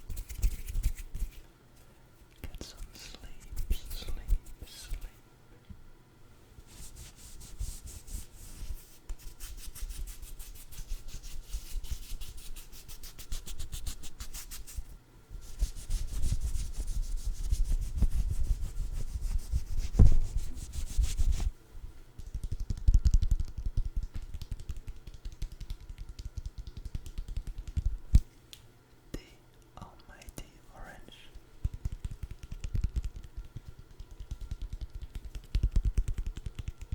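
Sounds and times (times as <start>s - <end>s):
rubbing and scratching on food: 0.0s - 1.5s, 6.7s - 21.5s, 22.2s - 28.0s, 31.1s - 36.9s.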